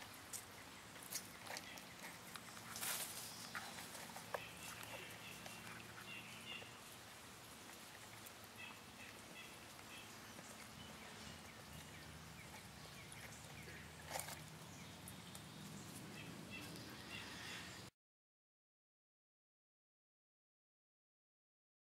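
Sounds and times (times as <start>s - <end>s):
stream trickling: 0.0s - 17.4s.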